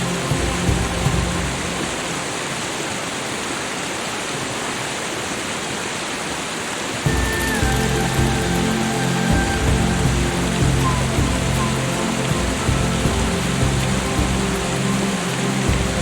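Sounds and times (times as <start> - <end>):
soft background music: 0.0 - 2.7, 7.0 - 16.0
water flowing: 0.0 - 16.0.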